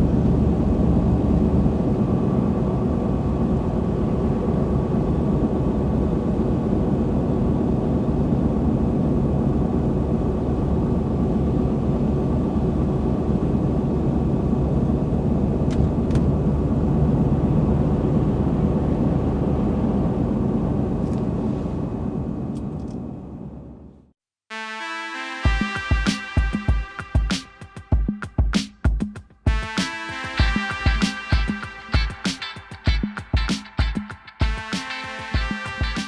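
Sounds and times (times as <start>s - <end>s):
truck engine and road drone: 0.0s - 24.1s.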